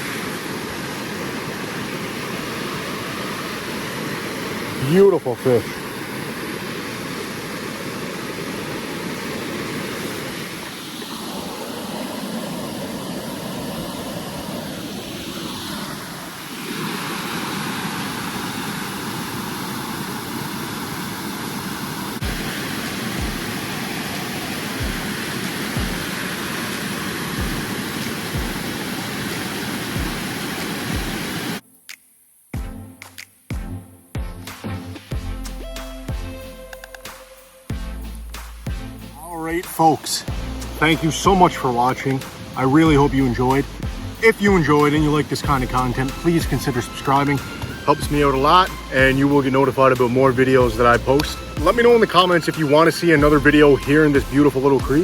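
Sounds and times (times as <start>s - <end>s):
regular low thump: 37.7s - 39.2s, 40.3s - 41.5s, 43.7s - 45.8s.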